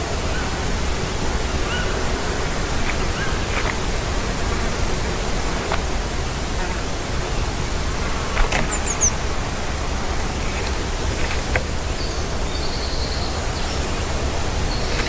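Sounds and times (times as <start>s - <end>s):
rushing outdoor background noise: 0.0s - 15.0s
bird chirps: 8.6s - 9.2s.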